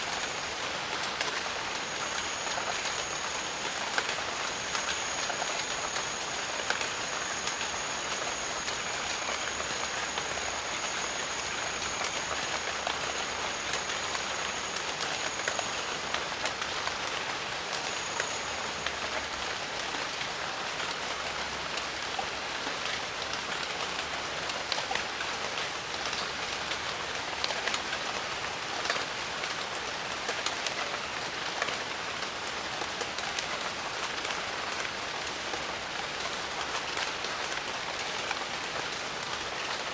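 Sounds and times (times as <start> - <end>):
raindrops ticking close by: 0.0 - 19.2
thin high whine: 0.0 - 20.0
steady rain: 0.0 - 39.9.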